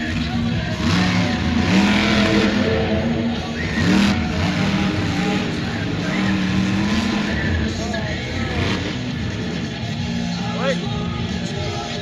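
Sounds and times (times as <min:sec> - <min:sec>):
truck engine running and revving: 0:00.0 - 0:12.0.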